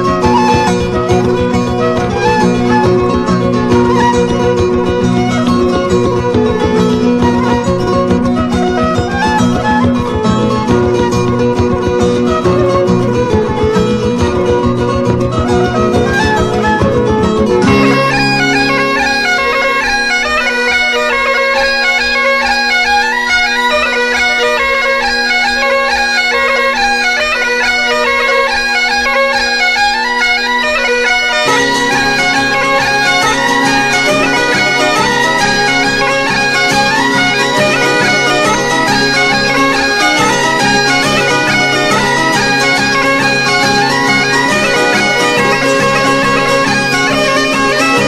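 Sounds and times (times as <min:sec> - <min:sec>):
bagpipe music with drones: 0:00.0 - 0:48.0.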